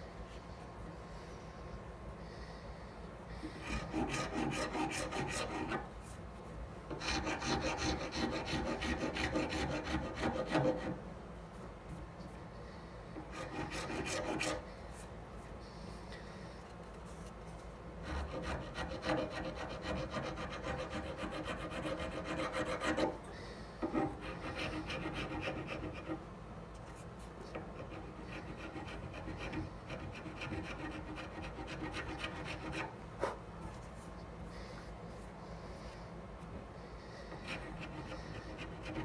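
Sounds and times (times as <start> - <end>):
hand file rasping on handle: 3.6 - 5.9, 7.0 - 11.0, 13.2 - 14.6, 18.0 - 23.2, 23.8 - 26.2, 27.8 - 32.9, 37.3 - 39.0.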